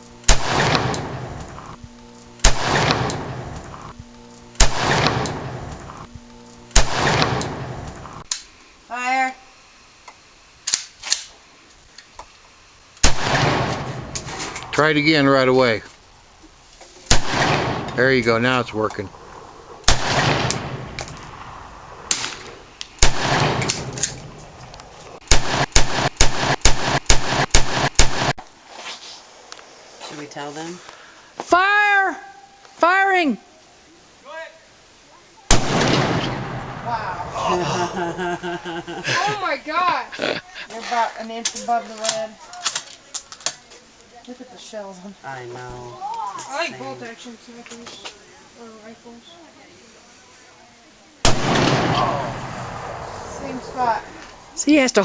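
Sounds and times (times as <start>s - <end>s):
rifle shots with echo: 0.2s - 1.5s, 2.4s - 3.6s, 4.6s - 5.7s, 6.7s - 8.1s, 13.0s - 14.6s, 17.1s - 18.2s, 19.8s - 24.6s, 25.2s - 28.4s, 35.5s - 37.3s, 51.2s - 54.5s.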